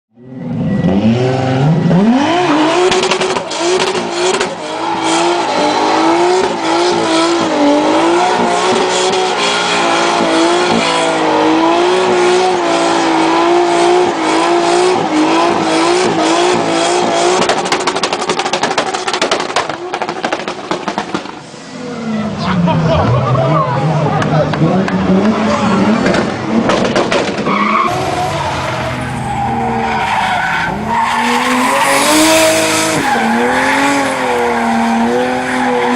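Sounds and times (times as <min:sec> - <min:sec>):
car engine revving: 0:00.2 - 0:35.9.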